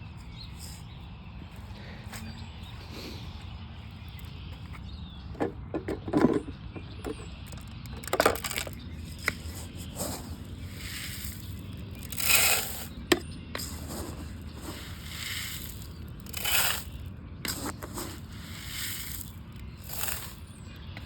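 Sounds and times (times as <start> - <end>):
scraping and crunching handling noise: 5.4 - 21.0.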